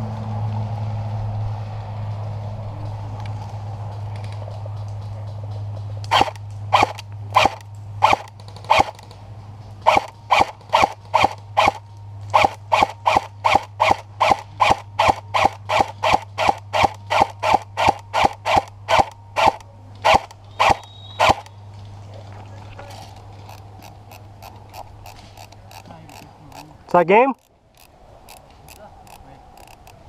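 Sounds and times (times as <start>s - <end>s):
airsoft rifle shots: 6.1s - 9.1s, 9.8s - 21.5s.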